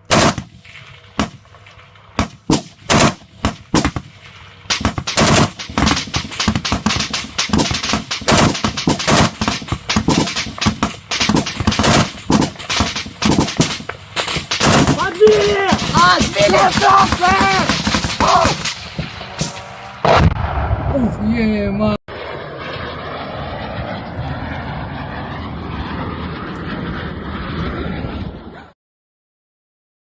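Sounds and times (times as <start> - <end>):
gunshots: 0.0 - 1.6, 2.2 - 20.9
rapid gunfire rattle: 2.2 - 19.7.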